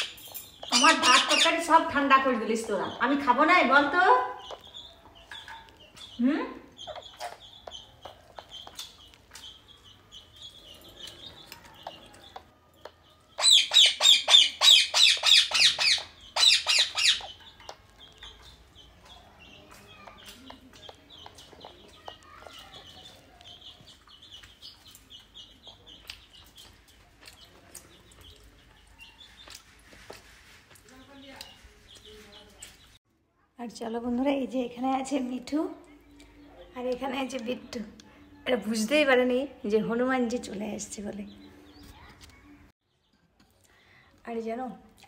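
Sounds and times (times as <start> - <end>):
parrot screeching: 0.0 - 1.7, 13.4 - 17.4
faint high bird chirping: 0.0 - 29.7.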